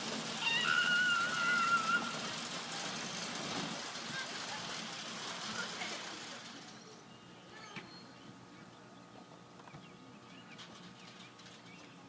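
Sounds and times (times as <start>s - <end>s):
faint bird chirps: 6.8s - 9.0s.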